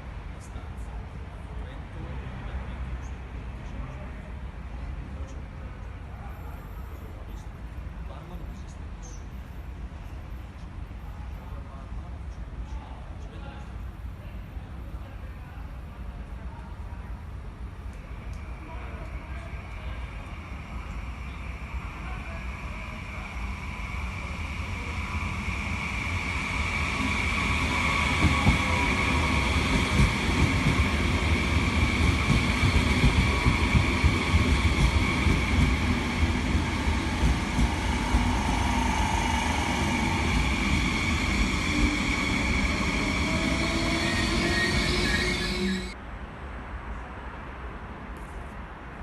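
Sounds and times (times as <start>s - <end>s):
train high whine: 17.2s - 46.0s
train wheel rumble and clatter: 17.8s - 46.0s.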